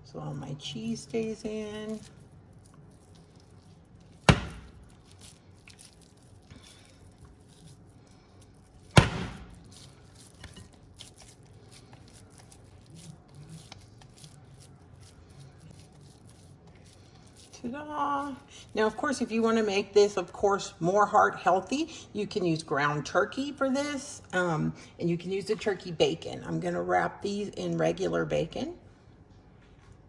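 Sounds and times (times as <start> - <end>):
hands squishing raw meat: 1.2 - 19.2
sharp thumps: 4.3 - 4.9, 9.0 - 9.7.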